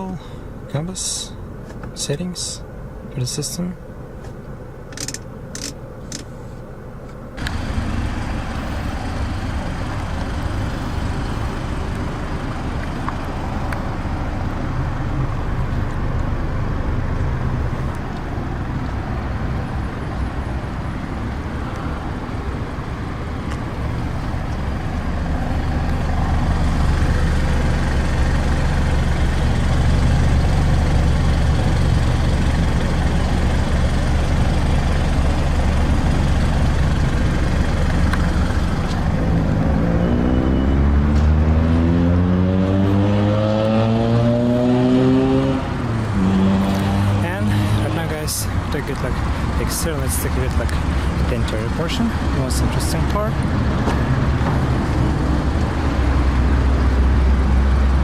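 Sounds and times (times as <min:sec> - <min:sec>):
road noise: 0:00.0 - 0:58.0
vehicle engine rumble: 0:00.0 - 0:58.0
sharp clicks: 0:04.9 - 0:06.3.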